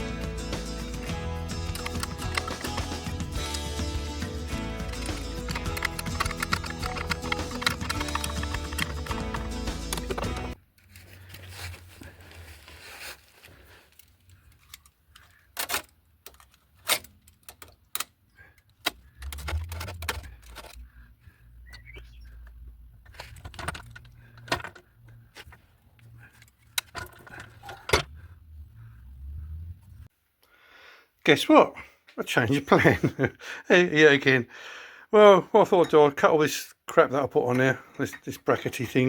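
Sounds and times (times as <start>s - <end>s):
low hum: 27.3s - 30.1s.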